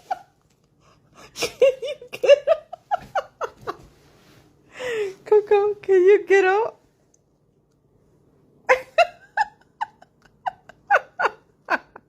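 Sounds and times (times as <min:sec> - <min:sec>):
person laughing: 0:01.2 - 0:03.9, 0:08.7 - 0:12.0.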